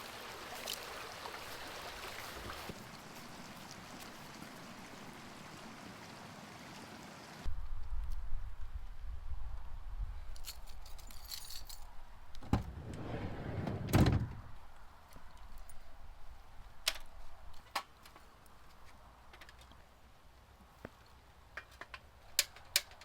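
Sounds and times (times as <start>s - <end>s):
keys jangling: 10.4s - 11.9s
loud thud: 12.4s - 14.5s
door opening and shutting: 12.4s - 14.6s
low rumble: 12.4s - 14.6s.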